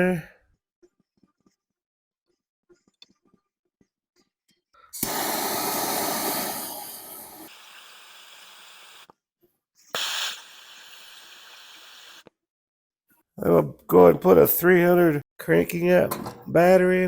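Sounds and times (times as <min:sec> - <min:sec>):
gas torch flame hissing: 0:05.0 - 0:09.1, 0:09.9 - 0:12.2
torch lighting whoosh: 0:05.0 - 0:09.1.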